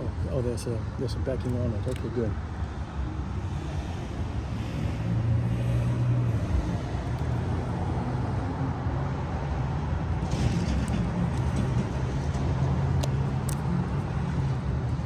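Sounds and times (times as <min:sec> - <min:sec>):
low rumble of traffic: 0:00.0 - 0:15.0
light clicks and taps: 0:01.4 - 0:02.3.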